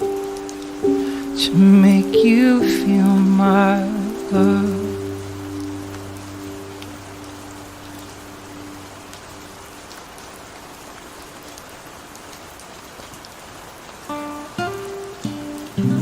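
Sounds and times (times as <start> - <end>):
held song chord: 0.0 - 9.0
steady rain: 0.0 - 16.0.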